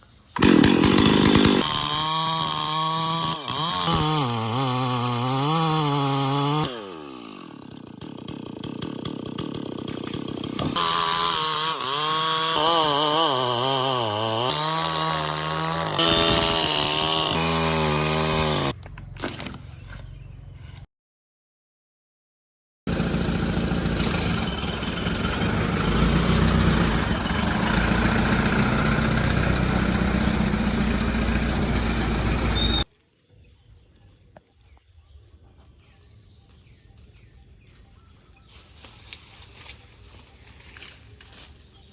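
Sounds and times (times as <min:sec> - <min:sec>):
chainsaw cutting wood: 0:00.4 - 0:19.6, 0:22.9 - 0:32.9.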